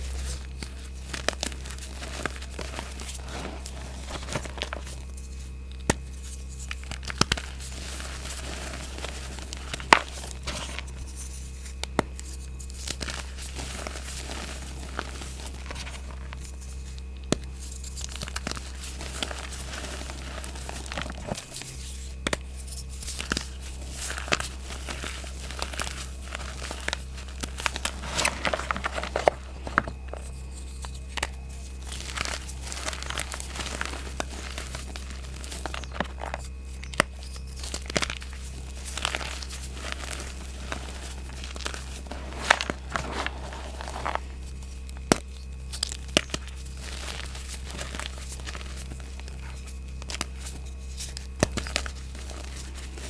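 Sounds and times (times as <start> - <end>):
chalk crunching and crumbling: 0.0 - 53.0.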